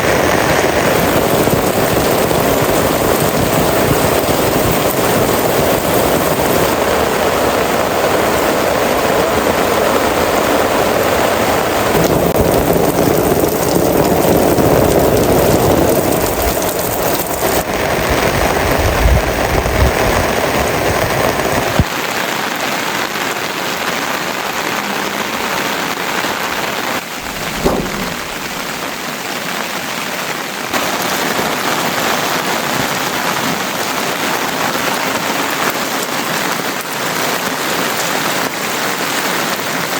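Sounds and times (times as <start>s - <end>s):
heavy rain falling: 0.0s - 39.9s
short sharp knock: 27.2s - 29.1s
deep low rumble: 27.2s - 29.3s.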